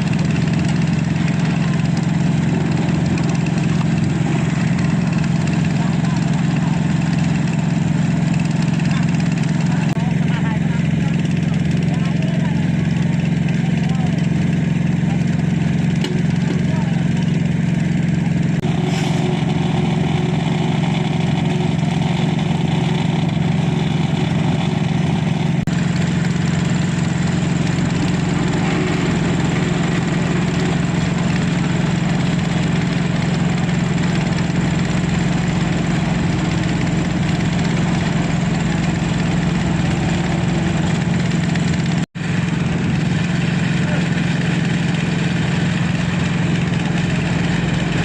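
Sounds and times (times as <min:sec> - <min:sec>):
deeper rumble: 0:00.0 - 0:48.0
diesel engine humming: 0:00.0 - 0:48.0.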